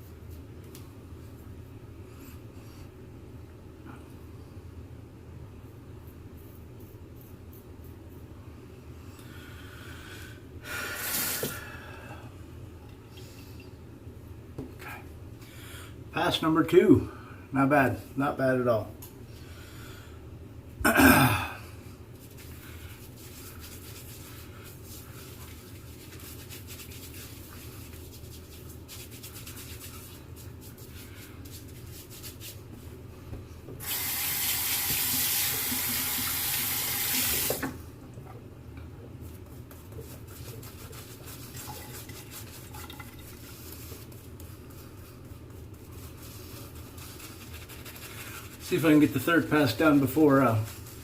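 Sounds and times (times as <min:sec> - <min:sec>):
low steady hum: 0:00.0 - 0:34.0, 0:34.6 - 0:51.0
sink tap running water: 0:33.8 - 0:37.8, 0:41.5 - 0:43.5.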